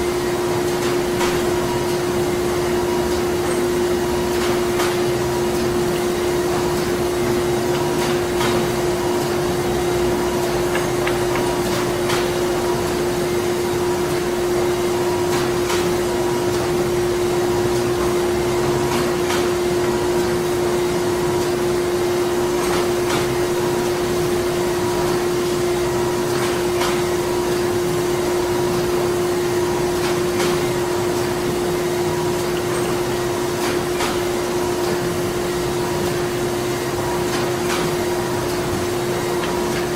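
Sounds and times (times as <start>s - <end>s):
factory machinery droning: 0.1s - 22.4s
machine clicks and knocks: 5.9s - 13.0s.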